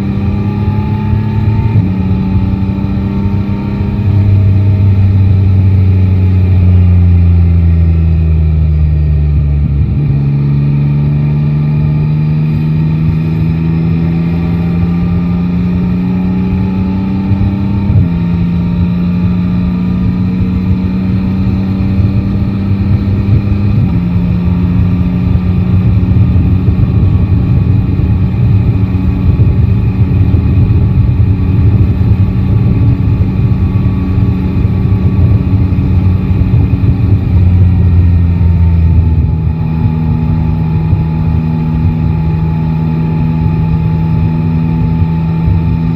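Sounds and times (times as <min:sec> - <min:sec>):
motorcycle engine accelerating: 0:00.0 - 0:45.9
road noise: 0:00.0 - 0:45.9
rushing wind: 0:09.2 - 0:45.9.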